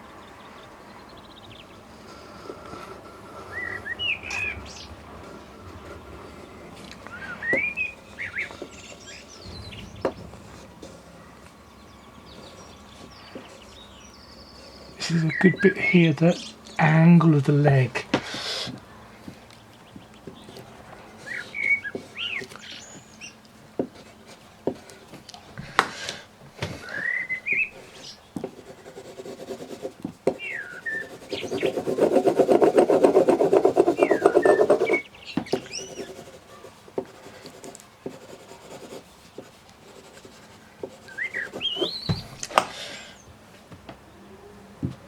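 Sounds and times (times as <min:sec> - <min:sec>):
small birds chirping: 0:00.0 - 0:25.8, 0:26.7 - 0:43.4
drawing tool scribbling on paper: 0:27.7 - 0:42.2.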